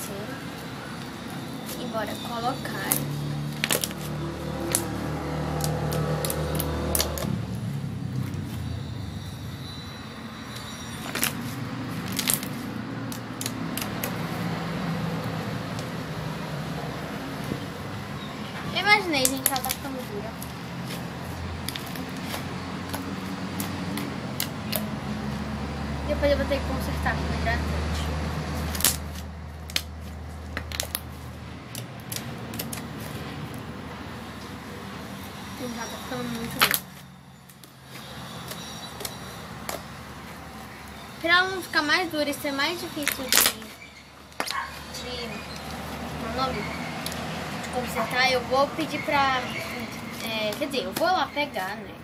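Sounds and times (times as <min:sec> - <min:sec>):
slime clicks and crackles: 0:30.5 - 0:31.1.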